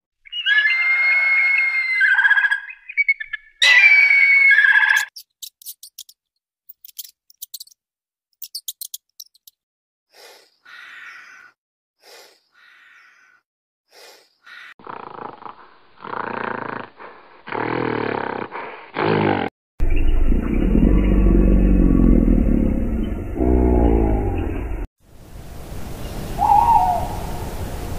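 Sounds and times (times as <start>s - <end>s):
bird call: 0.2s - 5.1s, 26.0s - 27.6s
loud low animal calls: 0.3s - 2.7s, 19.8s - 24.8s.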